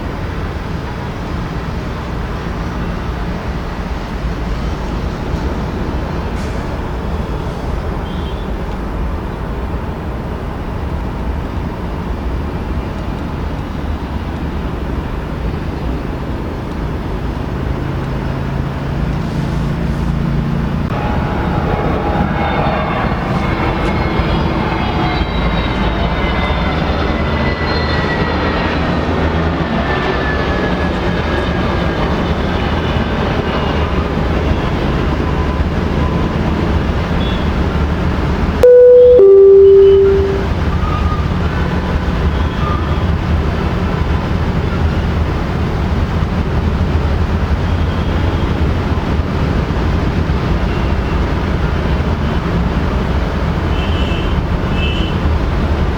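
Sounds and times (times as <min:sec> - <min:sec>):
airliner engines running: 0:00.0 - 0:40.4
high engine whine: 0:38.6 - 0:40.6.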